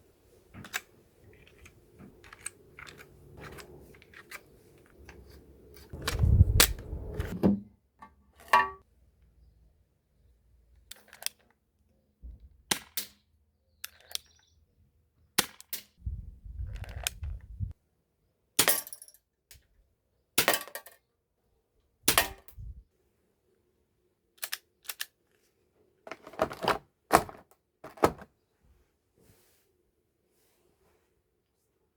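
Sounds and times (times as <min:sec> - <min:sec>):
low rumble of handling: 0:01.0 - 0:07.4, 0:16.1 - 0:17.7
toy revolver snaps and clicks: 0:24.4 - 0:25.2.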